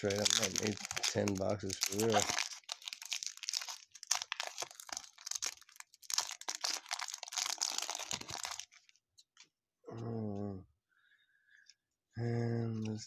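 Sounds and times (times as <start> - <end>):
wrapper crinkling: 0.0 - 9.0.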